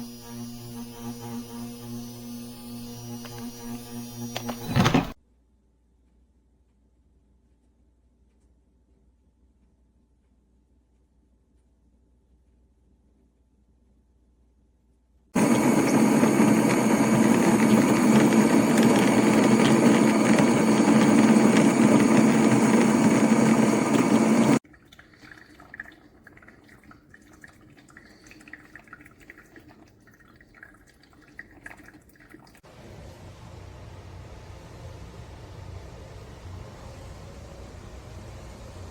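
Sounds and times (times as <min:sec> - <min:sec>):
coffee maker grinder running: 0:00.0 - 0:05.2, 0:15.4 - 0:24.6
faint crackling and gurgling: 0:15.4 - 0:32.6.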